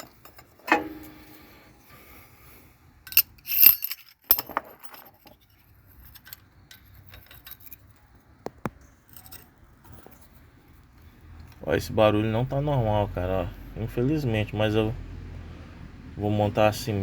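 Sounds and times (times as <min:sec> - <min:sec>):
short metallic rings: 0:00.0 - 0:01.6, 0:03.1 - 0:05.0
metallic clicks and clinks: 0:03.1 - 0:08.0, 0:09.1 - 0:10.4.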